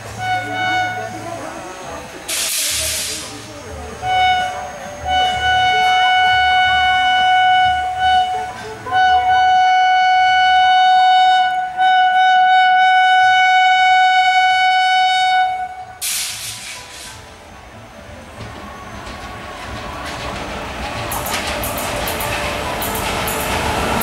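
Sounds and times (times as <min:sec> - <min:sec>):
locomotive horn: 0:00.0 - 0:01.5, 0:04.0 - 0:16.2
passing train rumble: 0:00.0 - 0:24.0
hiss burst: 0:01.5 - 0:03.6, 0:16.0 - 0:17.3.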